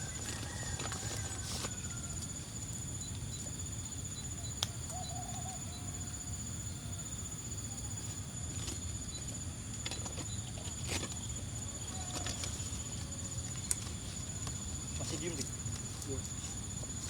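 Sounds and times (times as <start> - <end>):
insect drone: 0.0 - 17.0
bird hooting call: 4.3 - 7.1.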